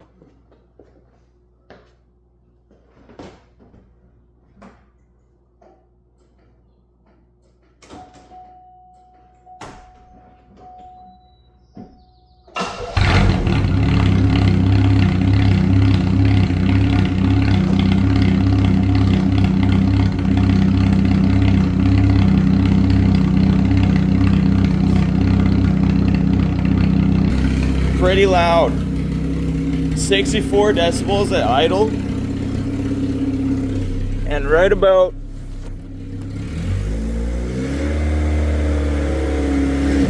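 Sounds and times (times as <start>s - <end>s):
car engine starting and idling: 12.1s - 40.0s.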